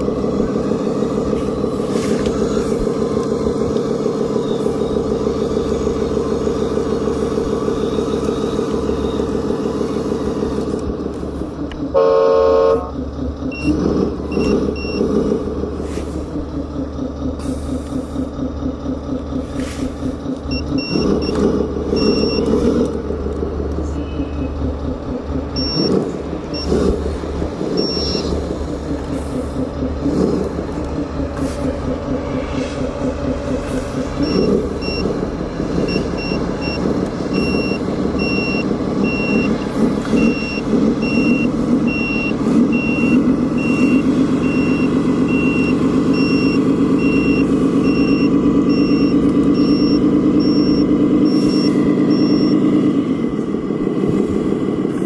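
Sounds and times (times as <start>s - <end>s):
model truck diesel engine noise: 0.0s - 55.0s
reversing beeper: 3.6s - 10.4s, 12.2s - 15.2s, 20.5s - 22.7s, 25.5s - 26.9s, 27.7s - 28.4s, 32.2s - 35.1s, 35.8s - 52.9s.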